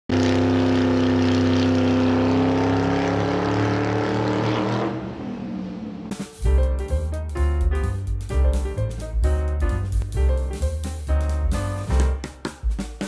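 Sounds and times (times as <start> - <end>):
racing car engine running: 0.1 - 6.4.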